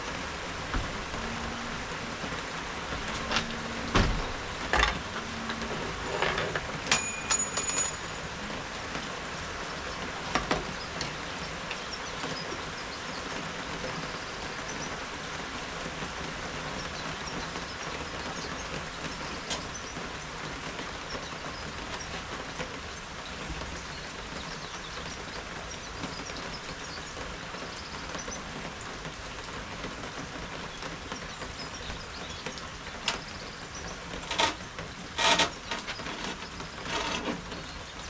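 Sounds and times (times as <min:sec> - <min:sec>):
steady rain falling: 0:00.0 - 0:38.0
knocks: 0:02.9 - 0:08.3.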